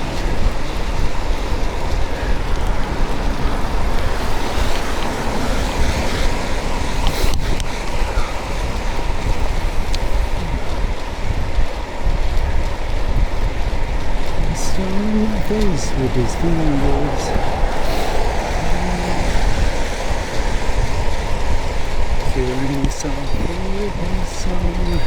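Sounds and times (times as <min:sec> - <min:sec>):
wind and road noise of vehicle: 0:00.0 - 0:25.0.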